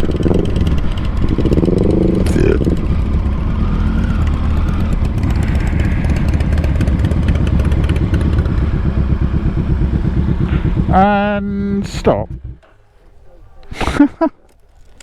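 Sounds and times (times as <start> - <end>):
wind noise on microphone: 0.0 - 3.6
motorcycle engine running: 0.0 - 15.0.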